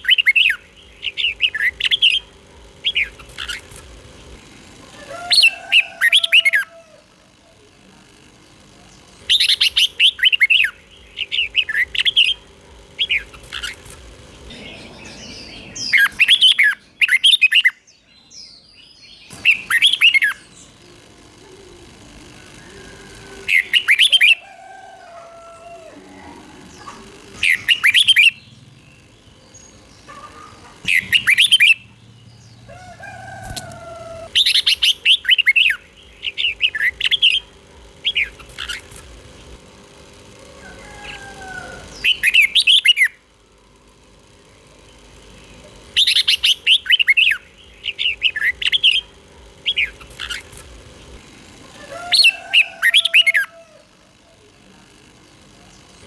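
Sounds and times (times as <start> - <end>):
bulbul singing rippling whistles: 14.5 - 17.8, 26.7 - 38.8, 45.9 - 50.5.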